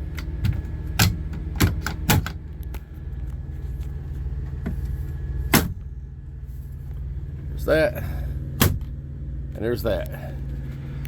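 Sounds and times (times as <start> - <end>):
auxiliary power unit humming: 0.0 - 11.0
compartment doors clicking and knocking: 0.2 - 2.4.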